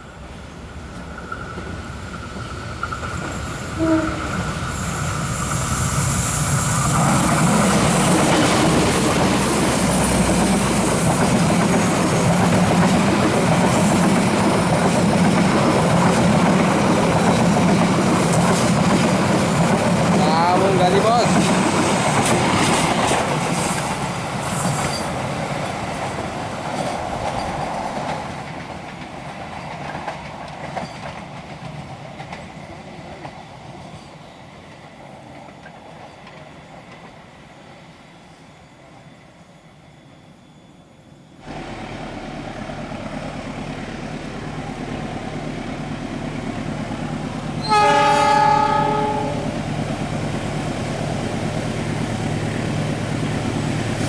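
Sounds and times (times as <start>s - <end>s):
passing train: 0.0s - 54.0s
diesel locomotive engine running: 1.7s - 30.4s, 41.4s - 54.0s
locomotive horn blast: 3.8s - 4.4s, 47.6s - 49.6s.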